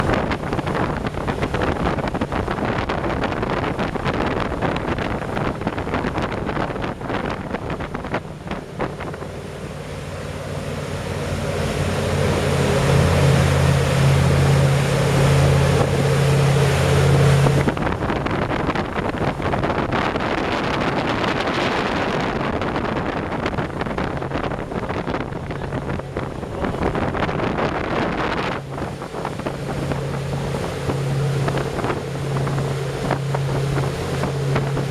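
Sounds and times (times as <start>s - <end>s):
motorboat engine running: 0.0s - 34.9s
water rushing past: 0.0s - 34.9s
wind on microphone: 0.0s - 34.9s.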